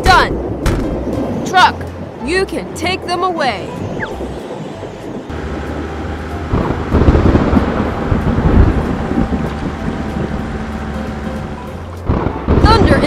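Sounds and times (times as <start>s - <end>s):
thunder rumble: 3.5s - 13.0s
truck engine running: 4.0s - 12.6s.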